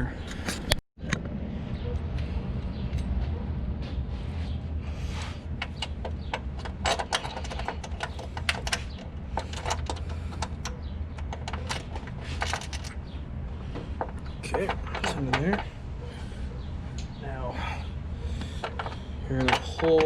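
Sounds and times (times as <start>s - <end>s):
low background rumble: 1.0s - 20.0s.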